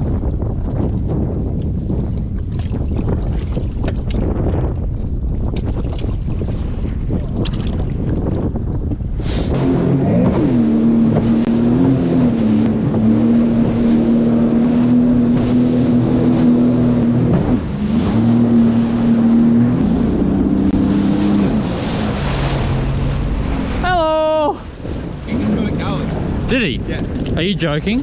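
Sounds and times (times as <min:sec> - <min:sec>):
wind on microphone: 0:00.0 - 0:28.0
jet ski engine at high revs: 0:09.4 - 0:26.6.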